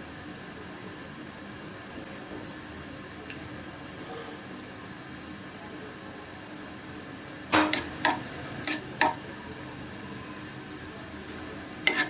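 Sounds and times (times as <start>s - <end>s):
nuts sizzling in oil: 0.0s - 12.0s
spatula knocking and scraping pan: 7.5s - 9.2s.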